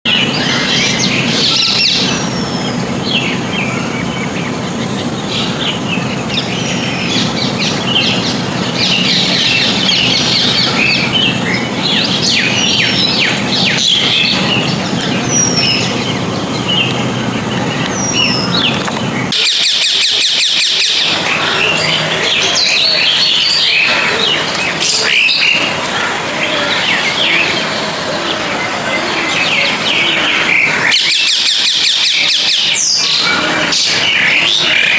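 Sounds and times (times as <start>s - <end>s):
birds chirping: 0.0s - 34.9s
steady low hum: 0.1s - 31.1s.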